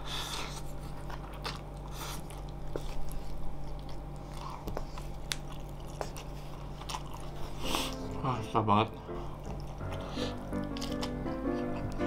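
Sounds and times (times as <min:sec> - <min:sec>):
noodles being chewed: 0:00.0 - 0:12.0.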